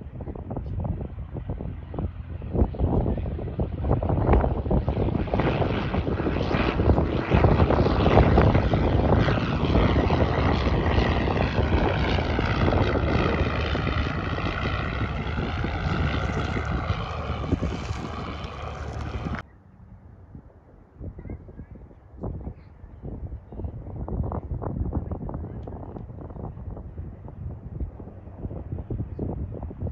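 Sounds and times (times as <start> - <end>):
propeller airplane passing by: 0.0 - 20.9.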